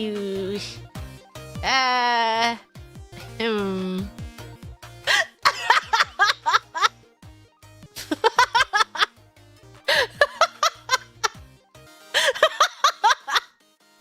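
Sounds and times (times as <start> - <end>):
faint background music: 0.0 - 6.4
woman giggling: 5.1 - 6.9, 9.9 - 11.4, 12.2 - 13.5.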